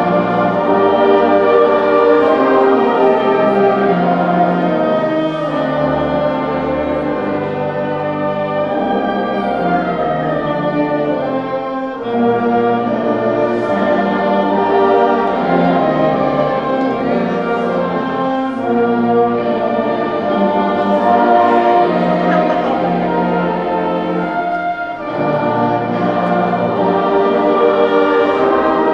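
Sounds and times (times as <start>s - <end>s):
band playing slow chords: 11.7s - 28.9s.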